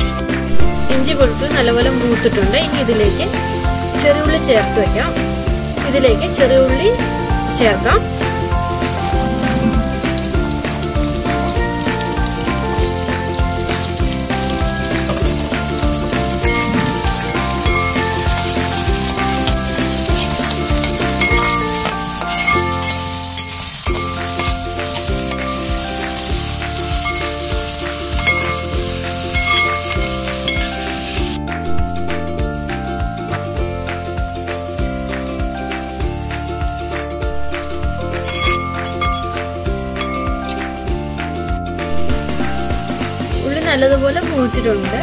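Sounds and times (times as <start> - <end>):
background music with steady beat: 0.0 - 45.0
shallots sizzling in oil: 0.0 - 45.0
spatula stirring in metal pan: 13.7 - 30.9.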